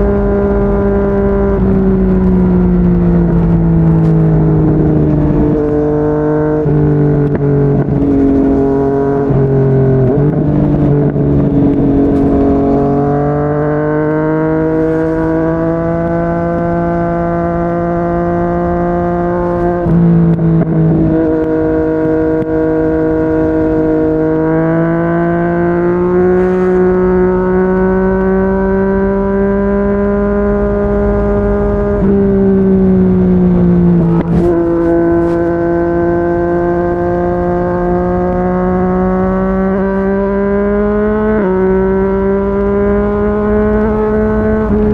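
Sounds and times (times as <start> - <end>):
motorcycle engine at speed: 0.0 - 44.9
wind and road noise: 0.0 - 44.9.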